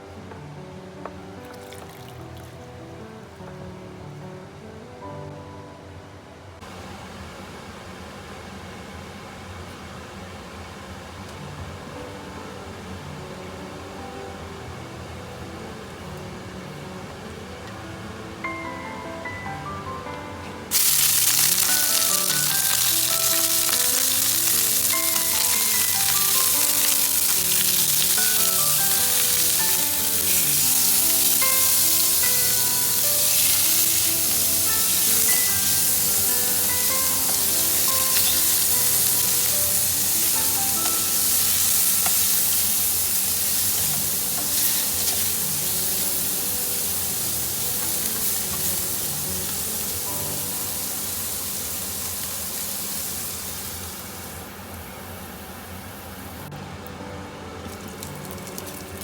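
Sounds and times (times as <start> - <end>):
background music: 0.0 - 6.4, 11.8 - 51.6
food sizzling in hot oil: 20.7 - 56.5, 57.7 - 59.0.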